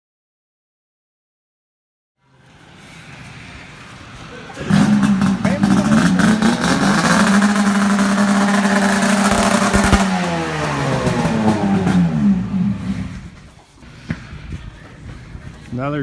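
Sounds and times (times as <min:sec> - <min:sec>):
vehicle engine revving: 0:02.8 - 0:13.5.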